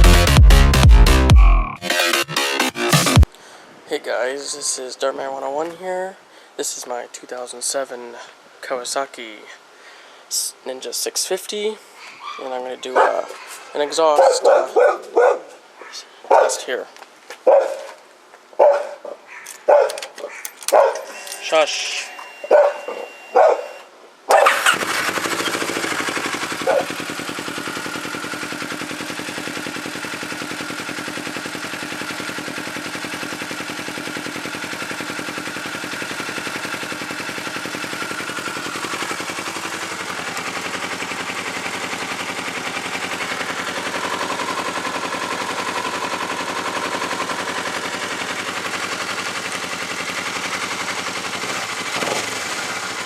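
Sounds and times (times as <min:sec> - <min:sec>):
motorcycle engine idling: 0:24.5 - 0:53.0.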